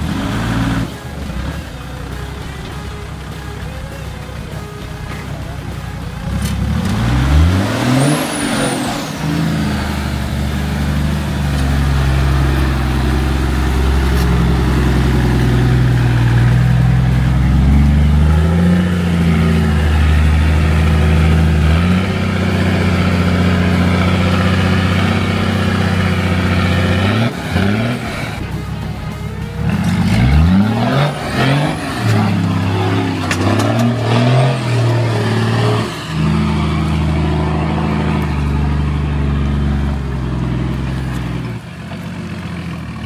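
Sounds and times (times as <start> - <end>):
vehicle engine revving under load: 0.0 - 43.0
high squeal falling in pitch: 7.2 - 28.5.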